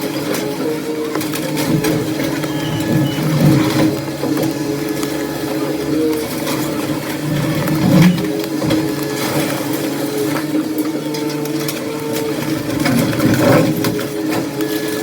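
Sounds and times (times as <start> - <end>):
demolition machinery engine hum: 0.0 - 15.0
hydraulic whine: 0.0 - 15.0
debris knocking and clattering: 1.2 - 4.8.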